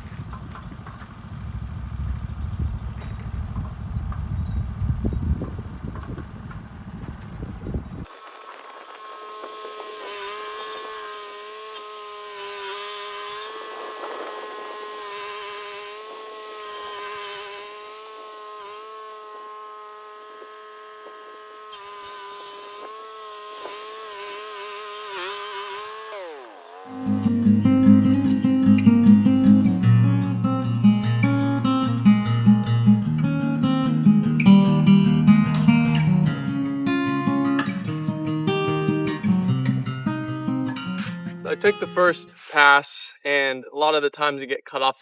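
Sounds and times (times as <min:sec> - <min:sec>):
low engine rumble: 0:00.0 - 0:08.1
high-pitched saw whine: 0:08.0 - 0:27.3.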